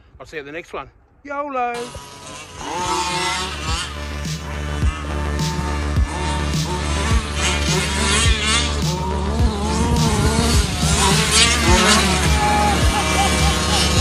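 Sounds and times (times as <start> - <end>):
rc car engine revving: 1.7 - 14.0
background music with beat: 3.1 - 14.0.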